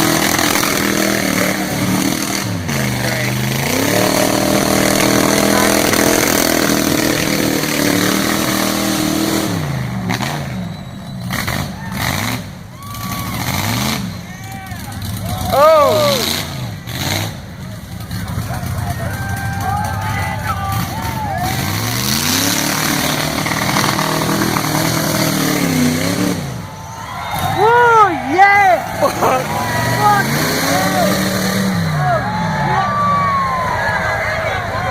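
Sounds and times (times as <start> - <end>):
truck engine revving high: 0.0 - 34.9.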